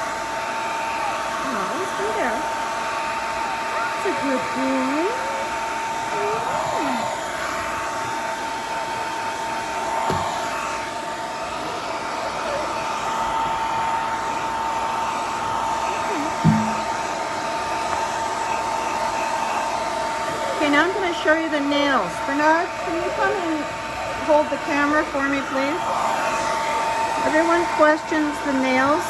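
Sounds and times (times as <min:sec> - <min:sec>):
hair dryer running: 0:00.0 - 0:29.0
brief thump: 0:16.4 - 0:17.0.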